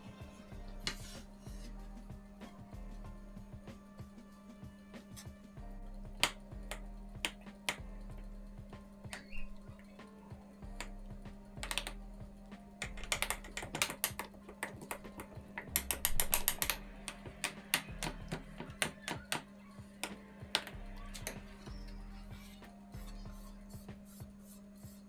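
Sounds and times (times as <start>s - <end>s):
steady low hum: 0.0s - 18.8s, 19.5s - 25.0s
sharp clicks and taps: 6.2s - 8.0s, 10.7s - 12.0s, 12.8s - 21.5s.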